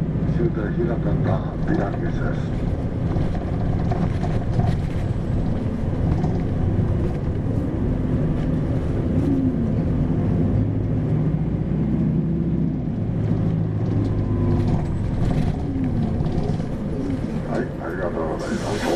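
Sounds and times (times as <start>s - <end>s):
bus diesel engine drone: 0.0s - 18.9s.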